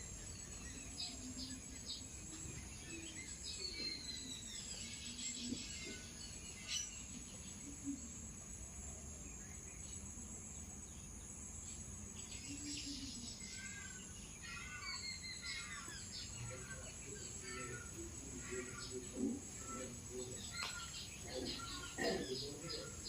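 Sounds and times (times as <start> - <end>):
insects droning: 0.0 - 23.0
small birds chirping: 0.0 - 23.0.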